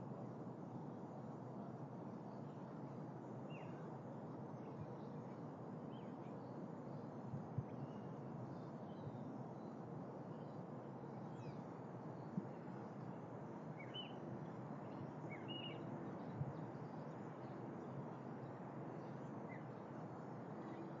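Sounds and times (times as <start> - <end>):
outdoor background noise: 0.0 - 21.0
bird chirps: 15.3 - 15.8.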